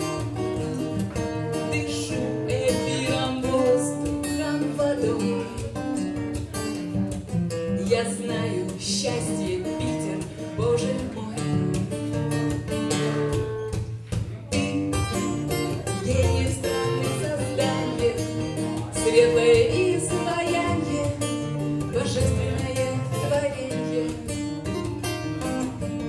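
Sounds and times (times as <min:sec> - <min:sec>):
person singing: 0:00.0 - 0:06.8, 0:07.7 - 0:13.3, 0:14.5 - 0:26.0
acoustic guitars strumming: 0:00.0 - 0:26.0.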